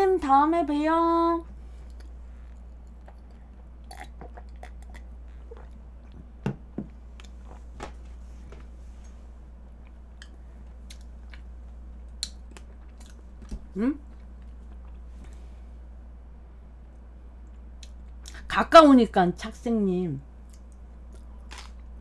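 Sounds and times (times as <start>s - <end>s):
steady low hum: 0.0s - 22.0s
person chewing food: 1.8s - 7.7s, 9.8s - 15.4s, 20.4s - 22.0s.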